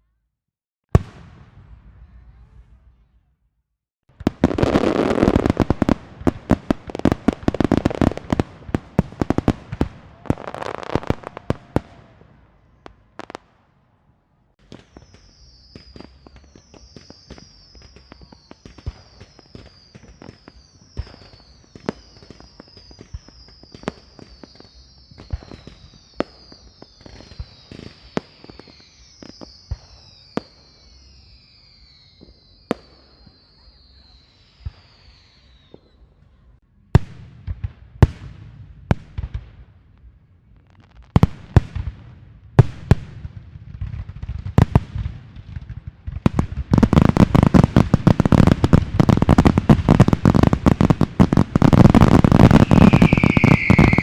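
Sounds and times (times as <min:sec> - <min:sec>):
firecrackers cracking: 0:04.1 - 0:12.2, 0:42.6 - 0:54.0
high whistles falling in pitch: 0:14.8 - 0:36.0, 0:51.6 - 0:54.0.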